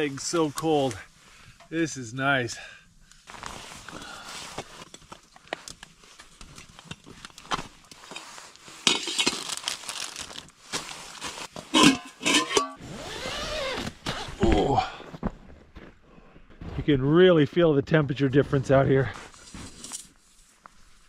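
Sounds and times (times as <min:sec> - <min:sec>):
camping gear rustling: 0:03.0 - 0:14.7, 0:19.1 - 0:21.0
clinks and knocks: 0:11.7 - 0:12.8.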